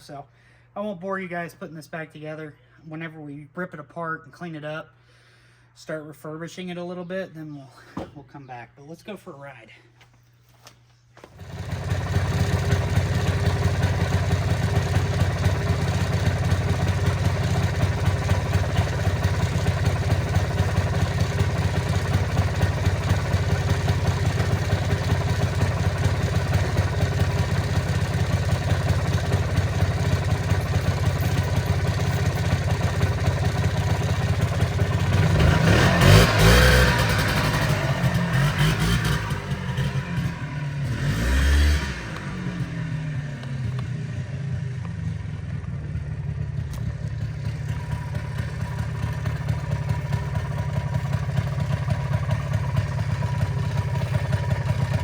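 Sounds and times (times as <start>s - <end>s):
atv engine running: 11.2s - 55.0s.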